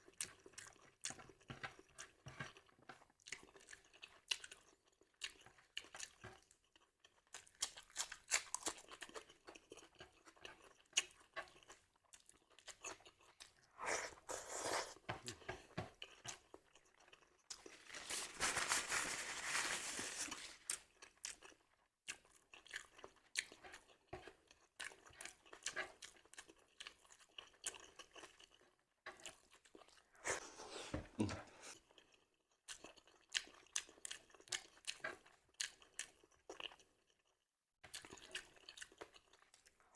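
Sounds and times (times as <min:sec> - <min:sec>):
chewing crisp raw food: 0:00.0 - 0:39.9.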